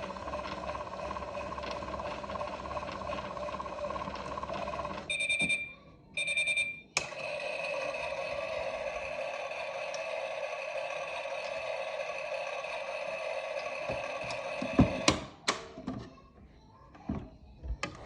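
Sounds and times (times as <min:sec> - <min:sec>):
toy washing machine running: 0:00.0 - 0:15.3
short electronic beeps: 0:05.1 - 0:06.9.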